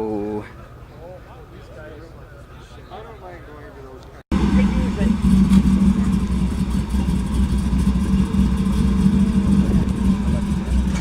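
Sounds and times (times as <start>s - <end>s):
car engine idling: 4.3s - 11.0s.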